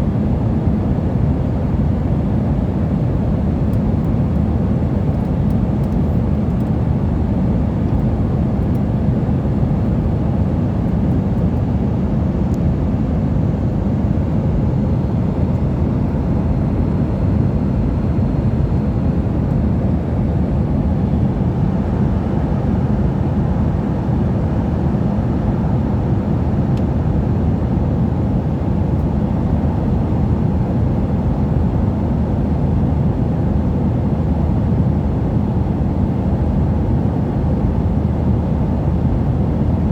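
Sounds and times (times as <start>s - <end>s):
aircraft cabin rumble: 1.8s - 39.9s.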